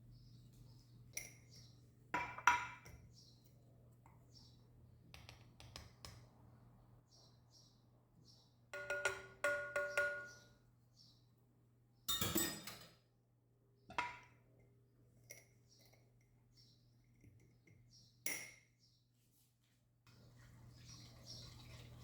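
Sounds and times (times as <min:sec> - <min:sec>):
glass or ceramic clinking: 0:08.8 - 0:10.4, 0:12.1 - 0:12.9.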